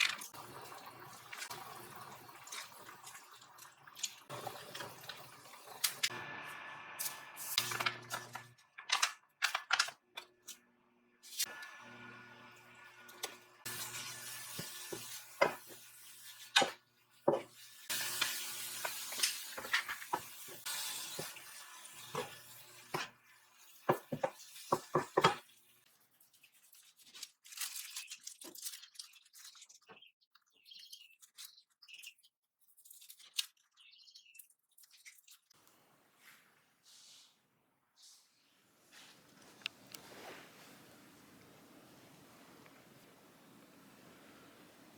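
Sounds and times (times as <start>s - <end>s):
appliance hum: 4.3s - 23.3s
faint handling sounds: 34.4s - 44.9s.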